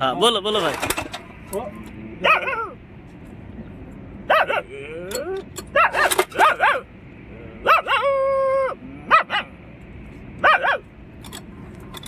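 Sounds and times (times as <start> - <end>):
man imitating dog barks: 2.2 - 2.8, 4.3 - 5.0, 7.6 - 9.6, 10.4 - 10.8.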